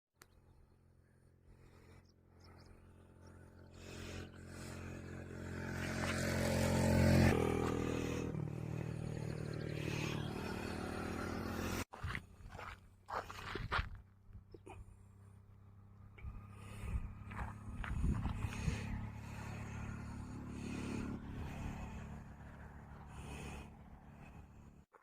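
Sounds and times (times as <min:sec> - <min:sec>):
vehicle engine passing: 0:02.4 - 0:11.9, 0:15.4 - 0:24.8.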